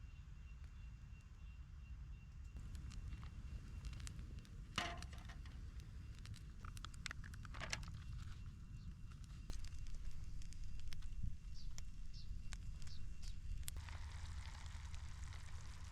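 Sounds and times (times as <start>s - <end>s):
campfire crackling: 2.6s - 15.9s.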